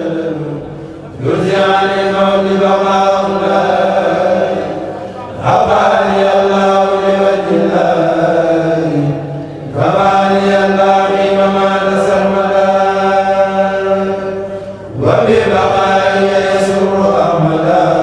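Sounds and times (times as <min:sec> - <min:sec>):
group chanting unaccompanied: 0:00.0 - 0:18.0.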